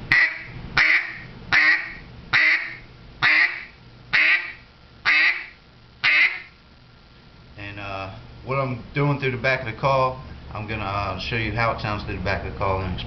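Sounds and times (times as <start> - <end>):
duck call quacks: 0.1 - 6.5.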